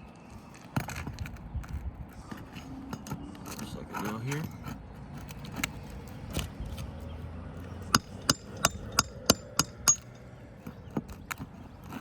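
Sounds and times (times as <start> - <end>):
hammer striking nail: 7.8 - 10.3.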